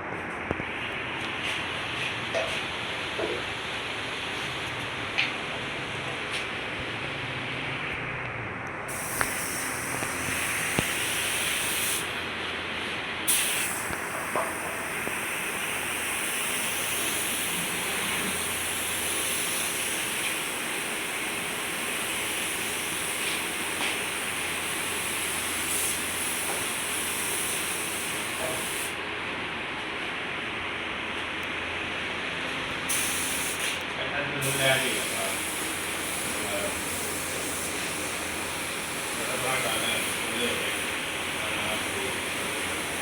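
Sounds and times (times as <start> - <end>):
hiss of air or spray: 8.9 - 12.2, 13.3 - 29.0, 32.9 - 33.8, 34.4 - 43.0.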